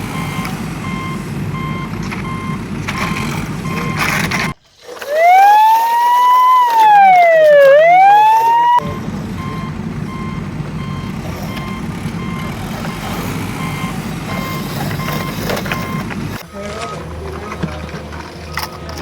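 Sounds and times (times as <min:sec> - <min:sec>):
reversing beeps: 0:00.0 - 0:04.6, 0:05.4 - 0:17.6, 0:18.3 - 0:19.0
truck engine rumble: 0:00.0 - 0:19.0
siren wailing: 0:05.0 - 0:17.0.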